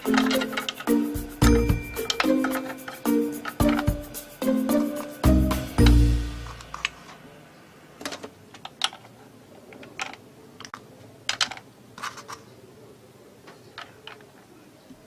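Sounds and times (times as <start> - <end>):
plastic toy pieces clicking: 0.0 - 3.9, 8.0 - 12.5, 13.8 - 14.4.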